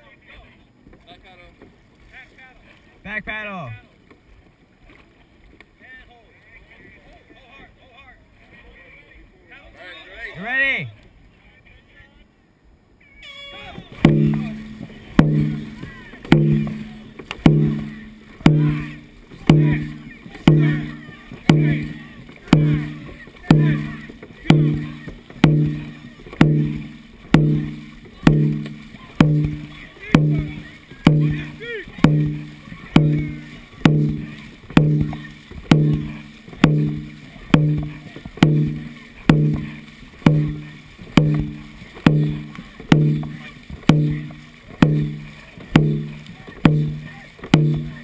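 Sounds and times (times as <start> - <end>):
drum strokes with ringing tone: 14.0 - 48.0.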